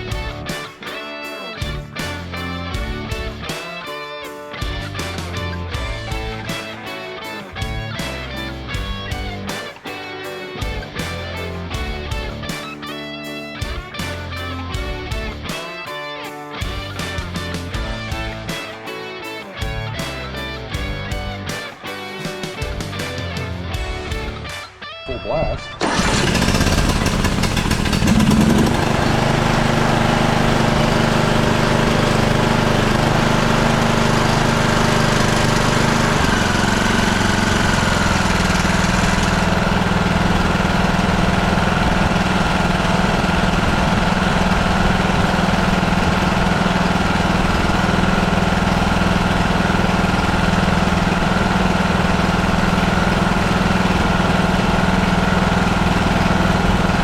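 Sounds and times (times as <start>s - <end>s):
lawn tractor engine running: 4.7s - 6.6s, 25.8s - 57.0s.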